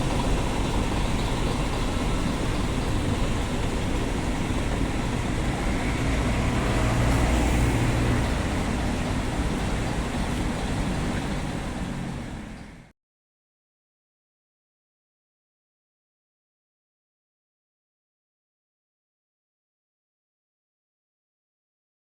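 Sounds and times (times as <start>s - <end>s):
truck engine hum: 0.0s - 12.9s
tyre and road noise: 0.0s - 12.9s.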